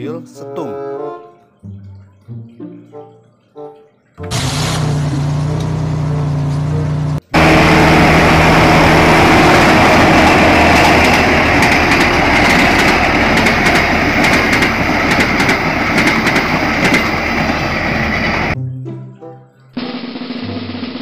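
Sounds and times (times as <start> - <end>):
heavy vehicle engine rattling: 4.3 - 18.6.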